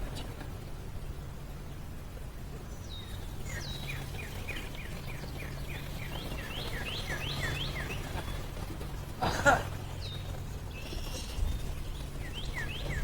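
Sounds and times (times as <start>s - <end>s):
small bird chirping: 10.0s - 13.0s.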